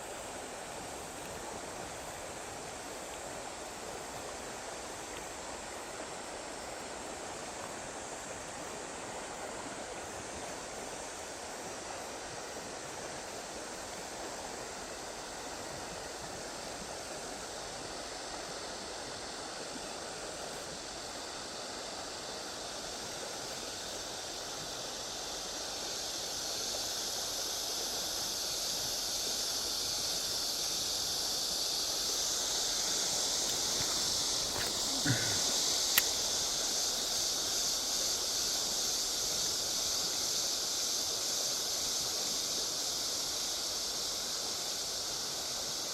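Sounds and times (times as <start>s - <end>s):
flowing river water: 0.0s - 45.9s.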